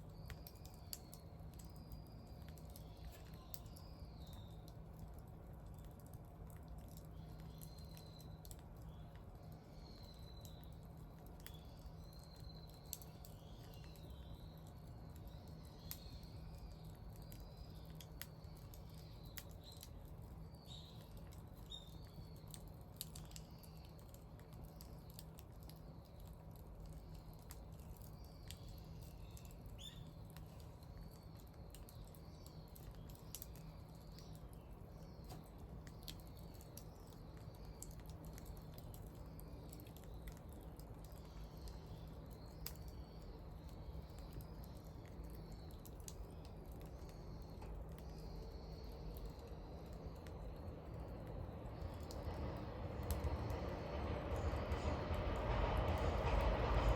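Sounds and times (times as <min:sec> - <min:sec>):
small birds chirping: 0:00.0 - 0:56.9
wood fire crackling: 0:00.0 - 0:56.9.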